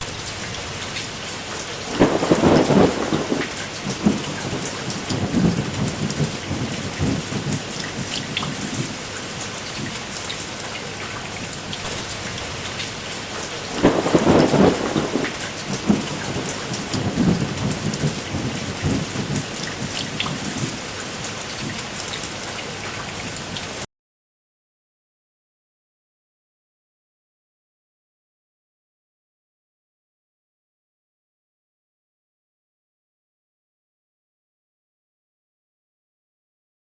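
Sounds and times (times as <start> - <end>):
thunder rolling: 0.0 - 8.9, 11.8 - 20.8
steady rain: 0.0 - 23.9.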